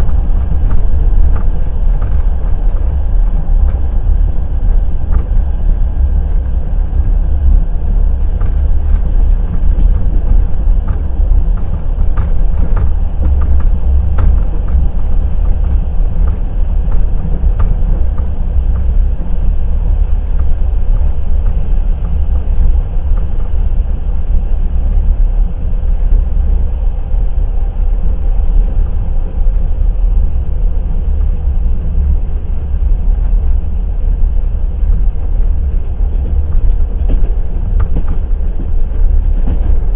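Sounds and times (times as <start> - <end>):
train wheels rumbling on rails: 0.0 - 39.9
wheels clicking over rails: 0.0 - 39.9.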